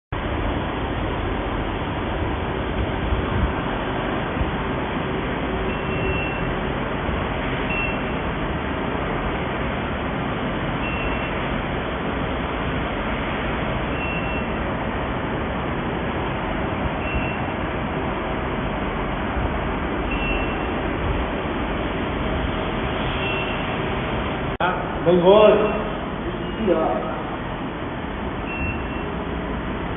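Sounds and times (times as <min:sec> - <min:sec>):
furnace machine hiss and hum: 0:00.2 - 0:29.9
short high beeps: 0:05.7 - 0:06.5, 0:07.7 - 0:08.2, 0:10.8 - 0:11.4, 0:13.9 - 0:14.5, 0:17.0 - 0:17.6, 0:20.1 - 0:20.8, 0:23.2 - 0:23.7, 0:25.6 - 0:26.7, 0:28.4 - 0:29.1.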